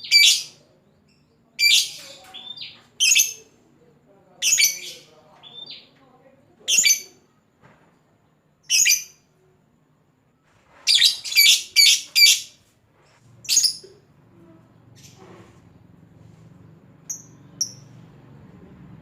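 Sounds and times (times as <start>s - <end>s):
lovebird chirping: 8.6s - 9.2s, 10.9s - 12.6s, 13.4s - 14.1s, 17.0s - 18.1s.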